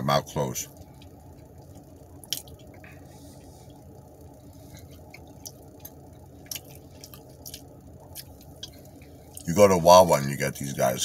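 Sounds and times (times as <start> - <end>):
person chewing cheese: 0.8 - 3.1, 3.7 - 9.5.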